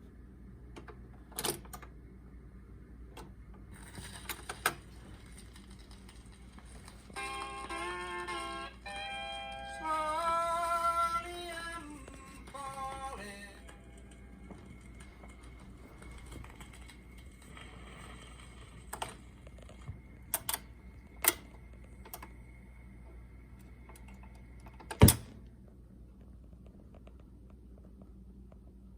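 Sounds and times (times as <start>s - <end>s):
record changer mechanical clicks: 18.8s - 22.6s
record changer clunk: 24.8s - 25.3s.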